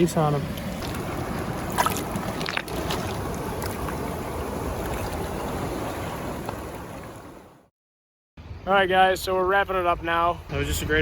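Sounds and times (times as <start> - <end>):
creek water running: 0.0 - 7.7.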